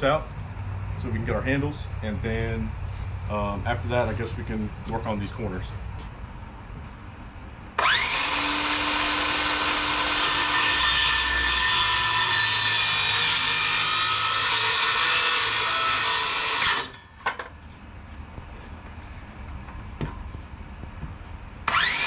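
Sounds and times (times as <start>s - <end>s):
power saw cutting plywood: 7.8s - 17.4s, 21.7s - 22.0s.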